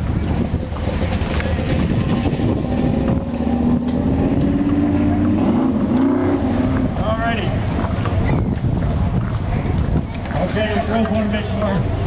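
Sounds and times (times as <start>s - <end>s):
car engine running: 0.0s - 8.2s.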